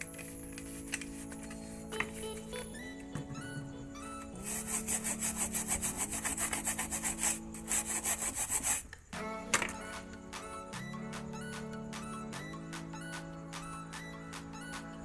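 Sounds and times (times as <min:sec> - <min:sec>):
background music: 0:00.0 - 0:15.0
rapid scraping on circuit board: 0:04.4 - 0:08.9.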